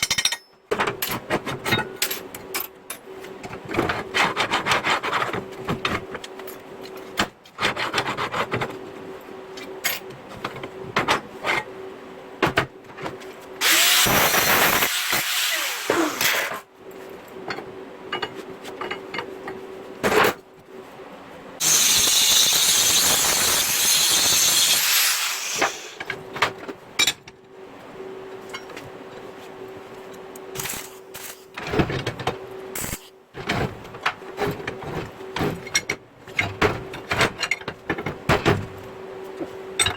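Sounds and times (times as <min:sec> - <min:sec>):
power tool running on metal: 0:13.6 - 0:16.6, 0:21.6 - 0:26.0.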